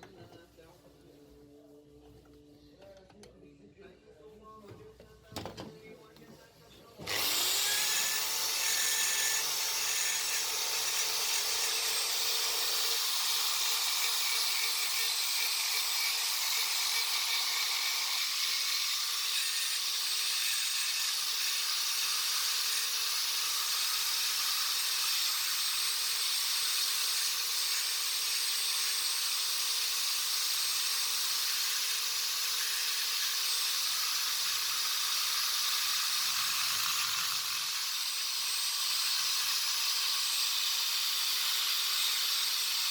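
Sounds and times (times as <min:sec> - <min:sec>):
small power tool hissing: 0:07.0 - 0:42.9.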